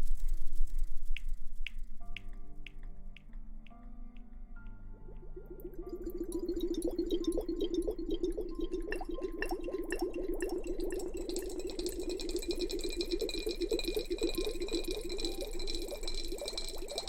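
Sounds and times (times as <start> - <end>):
foam fizzing and crackling: 5.4 - 17.0.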